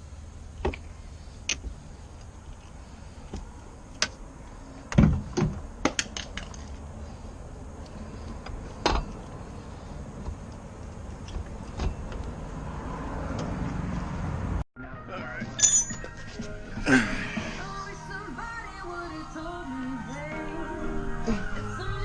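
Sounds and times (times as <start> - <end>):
metallic clinks of hand tools: 15.6 - 16.0.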